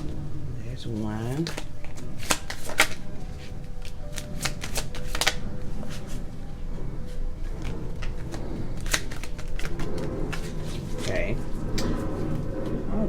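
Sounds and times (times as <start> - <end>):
cards being shuffled by hand: 1.0 - 6.3, 7.4 - 12.4.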